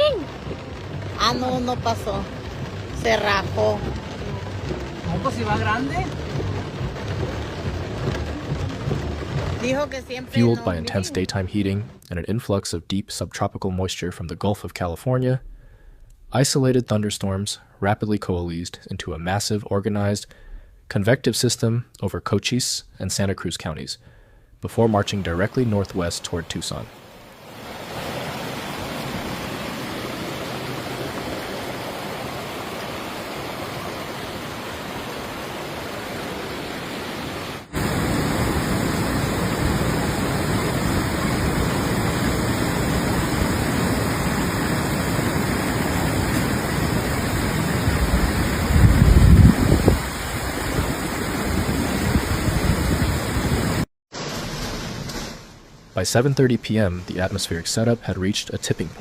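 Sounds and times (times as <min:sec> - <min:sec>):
storm rushing noise: 0:00.0 - 0:12.0, 0:25.0 - 0:55.7
deep rumbling: 0:00.0 - 0:12.1.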